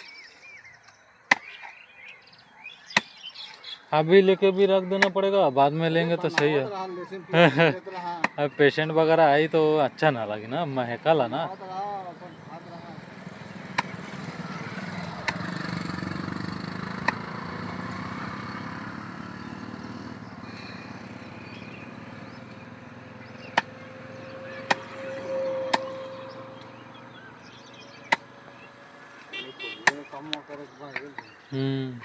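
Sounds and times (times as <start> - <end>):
cleaver chopping on block: 1.3 - 1.8, 2.9 - 3.2, 6.3 - 6.6, 8.2 - 8.4, 13.7 - 14.0, 14.6 - 15.8, 17.0 - 17.3, 23.4 - 25.9, 28.0 - 28.3, 29.2 - 30.4
passing vehicles rumble: 1.8 - 31.6.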